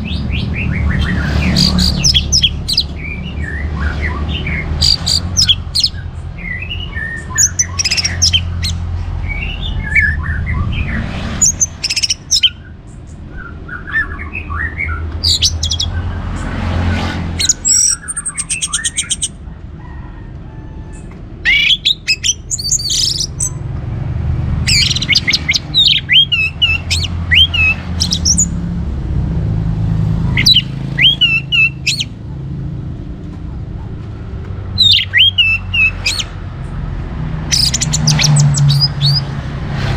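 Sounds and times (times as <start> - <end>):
bird trilling: 0.0 - 16.5, 17.4 - 20.0, 20.9 - 23.6, 24.6 - 28.6, 30.2 - 32.2, 34.7 - 36.4, 37.4 - 39.4
thrush singing: 0.0 - 19.4, 21.4 - 23.7, 24.5 - 28.7, 30.0 - 32.2, 34.7 - 36.4, 37.1 - 39.9.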